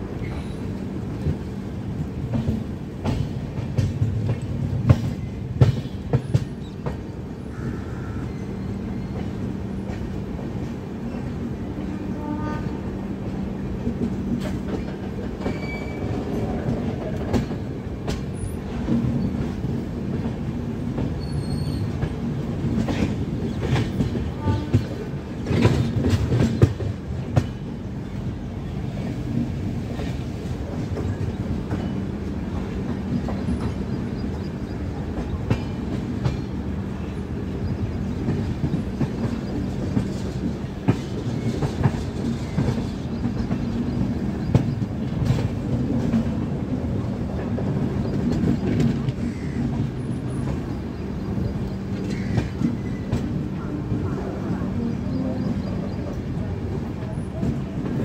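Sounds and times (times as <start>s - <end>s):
train clatter: 0.0s - 58.0s
train wheels clicking over rail joints: 0.1s - 7.4s, 13.3s - 28.0s, 28.8s - 54.0s.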